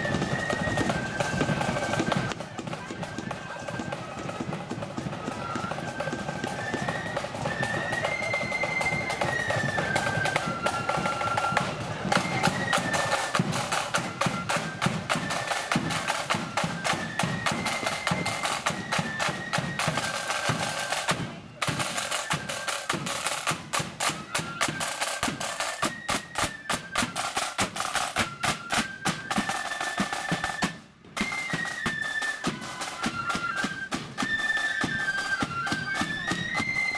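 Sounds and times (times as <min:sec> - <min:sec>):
flutes playing melody: 0:00.0 - 0:36.9
rattling snare drums: 0:00.0 - 0:36.9.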